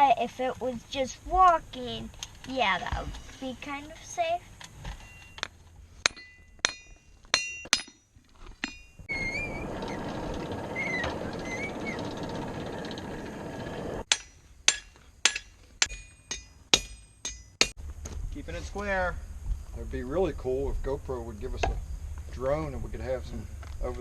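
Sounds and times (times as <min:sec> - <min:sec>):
hammer striking anvil: 0:06.0 - 0:08.0, 0:14.1 - 0:17.7.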